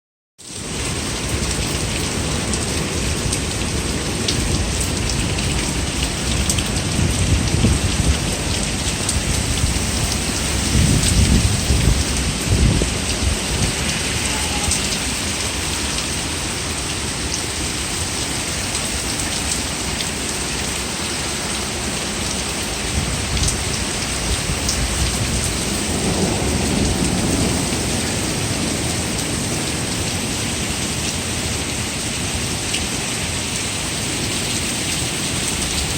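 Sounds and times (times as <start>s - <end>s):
hail and heavy rain pattering: 0.4s - 35.9s.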